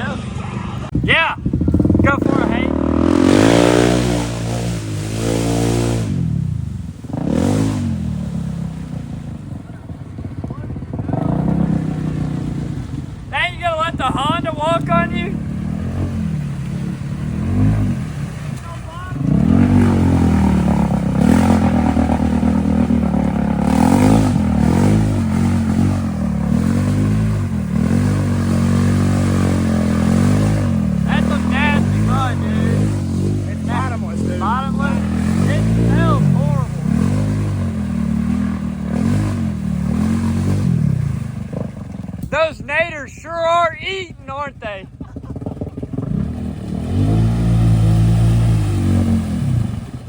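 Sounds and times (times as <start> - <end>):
quad bike engine revving: 0.0 - 42.9, 43.6 - 50.0.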